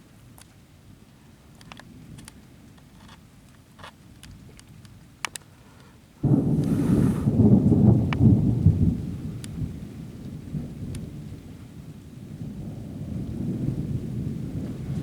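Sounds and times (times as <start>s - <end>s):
thunder rumbling: 6.2s - 15.0s.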